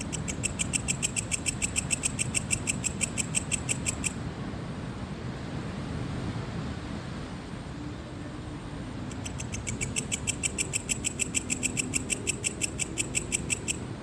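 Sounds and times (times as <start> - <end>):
cricket chirping: 0.0 - 4.2, 9.1 - 13.9.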